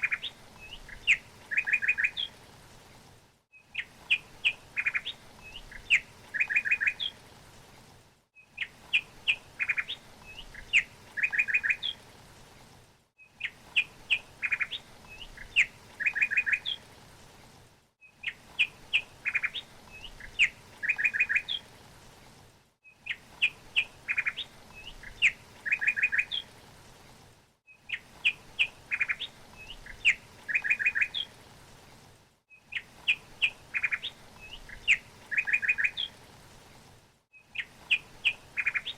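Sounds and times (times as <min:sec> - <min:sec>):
small songbird chirping: 0:00.0 - 0:02.4, 0:03.5 - 0:07.2, 0:08.4 - 0:12.0, 0:13.2 - 0:16.8, 0:18.0 - 0:21.7, 0:22.8 - 0:26.5, 0:27.7 - 0:31.3, 0:32.5 - 0:36.2, 0:37.3 - 0:38.9
faint steady hiss: 0:00.0 - 0:38.9.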